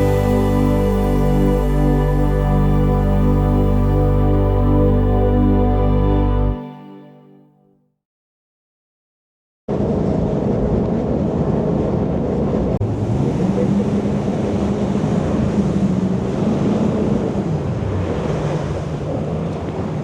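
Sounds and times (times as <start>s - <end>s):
water rushing: 0.0s - 6.5s
boat engine running: 0.0s - 6.6s.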